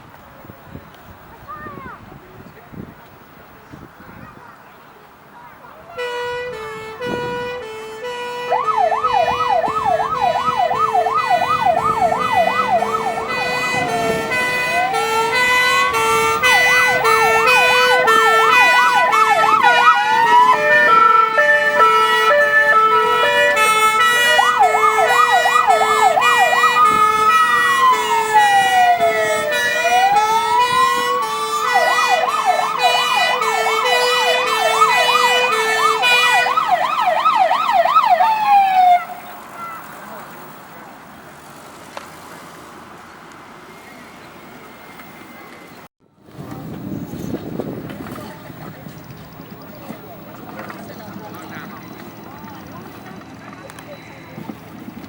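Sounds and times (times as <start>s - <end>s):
two-tone siren horn: 5.9s - 39.3s
electronic siren yelp and wail: 8.2s - 39.3s.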